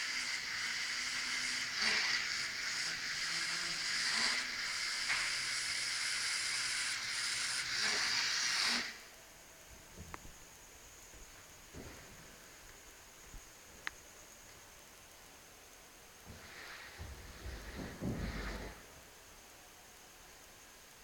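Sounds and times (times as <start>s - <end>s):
small electric motors whining: 0.0s - 9.1s.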